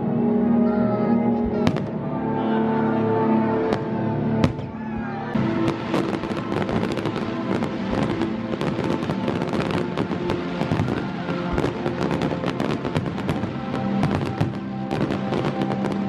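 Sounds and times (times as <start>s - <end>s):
fireworks crackling and popping: 5.4s - 16.0s.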